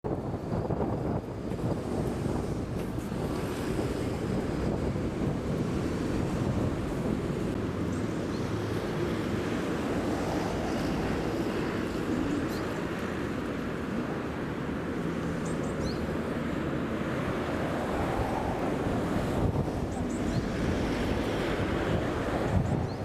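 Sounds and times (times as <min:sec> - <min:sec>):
wind buffeting microphone: 0:00.0 - 0:23.0
river water rushing: 0:05.2 - 0:22.8.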